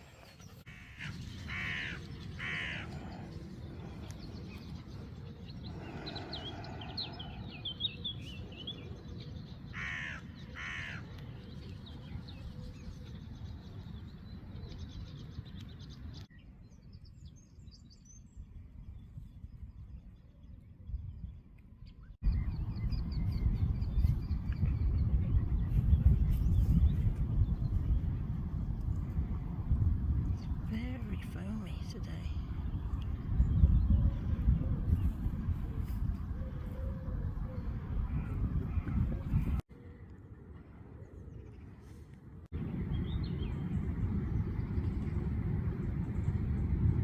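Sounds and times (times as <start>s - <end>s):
crow cawing: 0.9s - 2.9s, 9.8s - 11.0s
low outdoor rumble: 22.2s - 47.0s.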